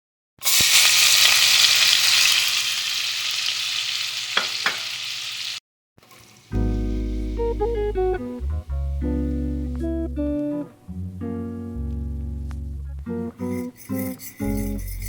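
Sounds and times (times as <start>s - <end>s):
food sizzling in a frying pan: 0.4s - 6.6s.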